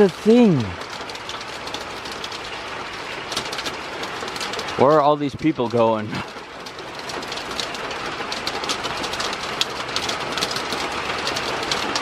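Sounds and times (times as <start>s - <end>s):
rain falling: 0.0s - 12.0s
raindrops ticking close by: 0.0s - 12.0s.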